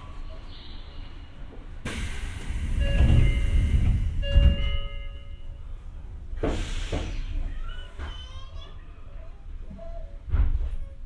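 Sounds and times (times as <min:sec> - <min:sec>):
air hiss: 0:01.8 - 0:04.2, 0:06.4 - 0:07.4
train doors thudding shut: 0:01.8 - 0:05.2.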